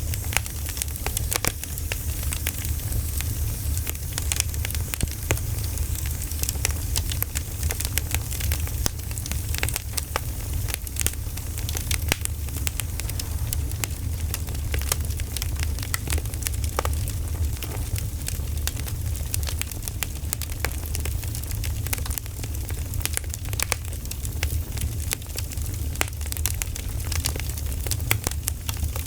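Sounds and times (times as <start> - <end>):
campfire crackling and popping: 0.0 - 29.0
low rumble: 10.9 - 15.8.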